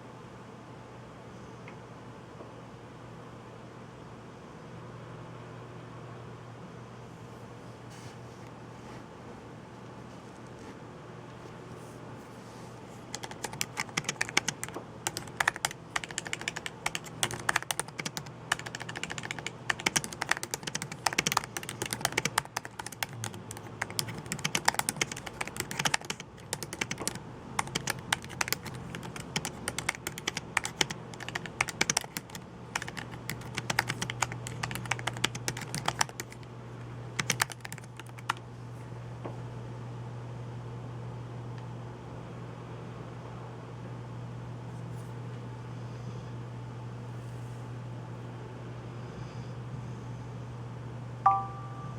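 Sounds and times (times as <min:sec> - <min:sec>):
typing on computer keyboard: 0:13.1 - 0:36.5, 0:37.2 - 0:38.4.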